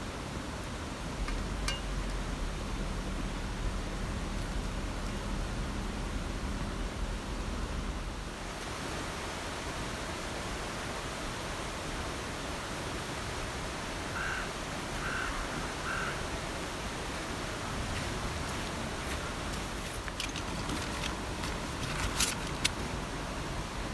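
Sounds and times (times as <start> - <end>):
rushing water: 8.4 - 23.9.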